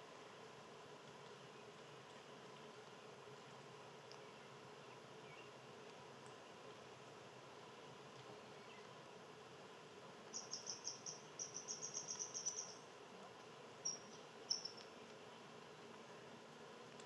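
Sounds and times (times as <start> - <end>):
small animal chirping: 10.3 - 12.8, 13.8 - 14.9.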